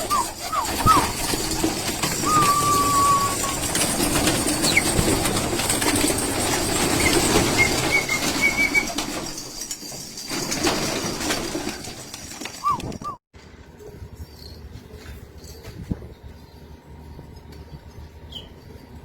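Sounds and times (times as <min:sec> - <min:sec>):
whistle-like call: 0:00.0 - 0:01.2, 0:02.2 - 0:03.6
pigeons cooing: 0:00.0 - 0:03.9
wings flapping: 0:00.0 - 0:09.6, 0:10.2 - 0:13.2
steady rustling din: 0:00.0 - 0:13.2.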